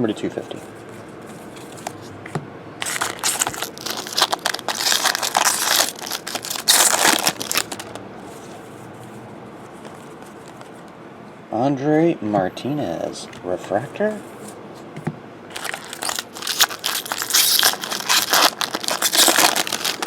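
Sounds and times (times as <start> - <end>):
foil wrapper crinkling and tearing: 2.8 - 8.0, 15.5 - 20.0.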